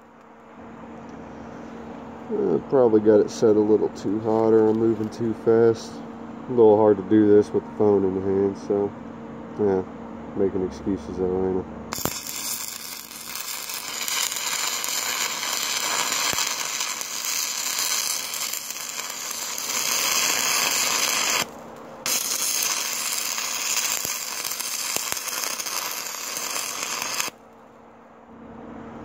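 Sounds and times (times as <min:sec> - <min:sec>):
welding arc crackling: 0:11.9 - 0:27.4.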